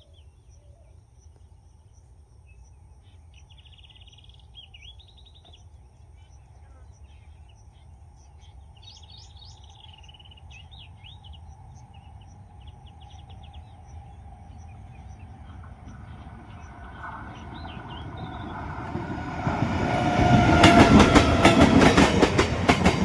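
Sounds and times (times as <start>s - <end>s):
birds chirping and trilling: 0.0s - 19.3s
train approaching rumble: 7.4s - 23.0s.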